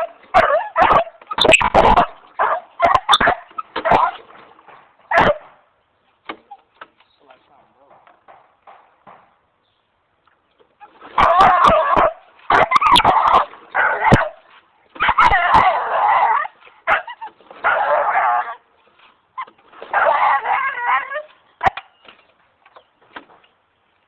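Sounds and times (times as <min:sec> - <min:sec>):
dog yelping and whining: 0:00.0 - 0:04.2, 0:10.8 - 0:14.4, 0:15.0 - 0:18.6, 0:19.4 - 0:21.8.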